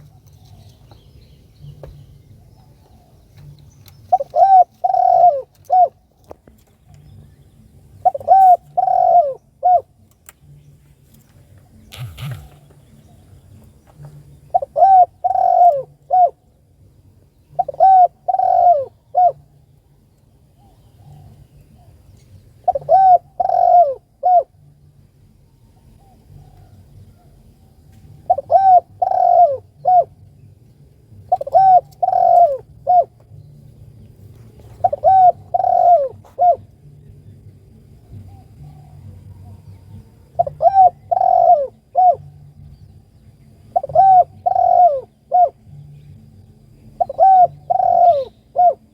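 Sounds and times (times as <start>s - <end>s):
dove cooing: 1.6s - 6.1s, 7.9s - 10.0s, 11.6s - 13.4s, 14.0s - 16.5s, 17.5s - 19.7s, 20.5s - 24.7s, 25.8s - 27.5s, 28.1s - 30.3s, 31.1s - 33.7s, 34.4s - 37.2s, 38.0s - 42.6s, 43.6s - 45.8s, 47.0s - 48.9s.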